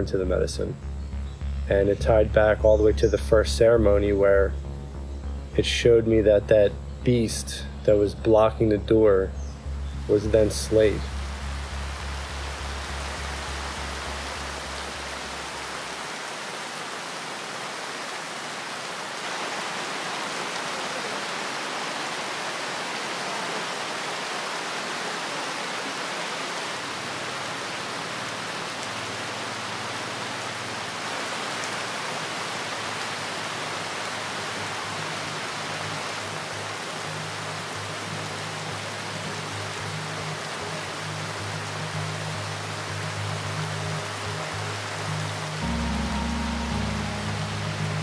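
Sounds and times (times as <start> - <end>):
low music drone: 0.0 - 16.0, 34.6 - 48.0
heavy rain: 9.6 - 48.0.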